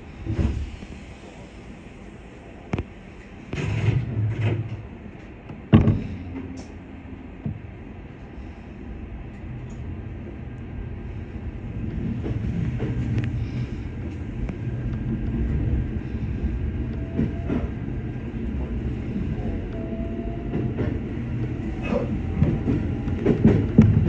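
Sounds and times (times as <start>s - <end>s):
electric train rumble: 0.0s - 24.0s
clacks over rail joints: 20.5s - 24.0s.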